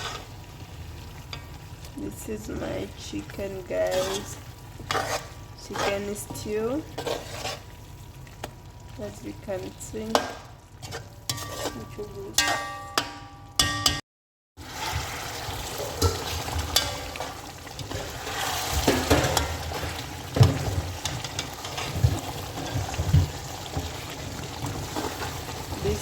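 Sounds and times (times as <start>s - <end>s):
spoon scraping a pot: 0.0s - 0.3s, 3.8s - 7.7s, 10.8s - 13.1s, 21.0s - 24.1s
stew sizzling in a pot: 0.0s - 13.0s, 14.6s - 26.0s.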